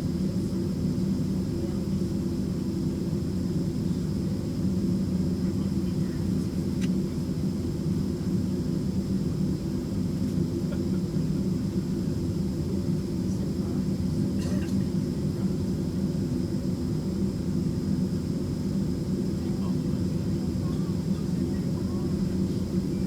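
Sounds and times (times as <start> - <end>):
small click: 6.8 - 7.0
airplane cabin drone: 8.0 - 23.0.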